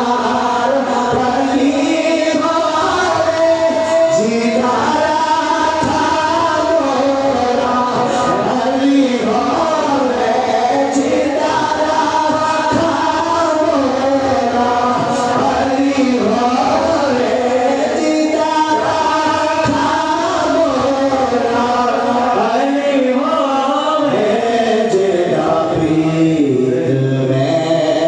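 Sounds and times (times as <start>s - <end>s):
voices singing a devotional chant: 0.0s - 28.0s.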